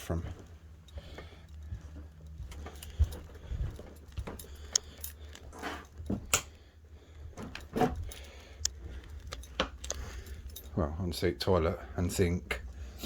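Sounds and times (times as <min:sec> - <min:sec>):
keys jingling: 0:00.0 - 0:06.4, 0:07.3 - 0:10.9.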